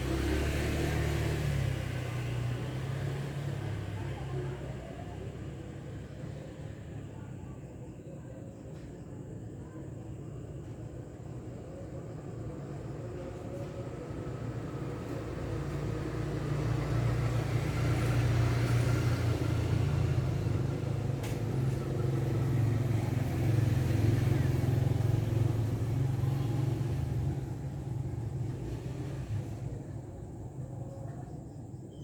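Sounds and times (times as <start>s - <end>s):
vehicle engine humming: 0.0s - 5.7s, 13.6s - 30.8s.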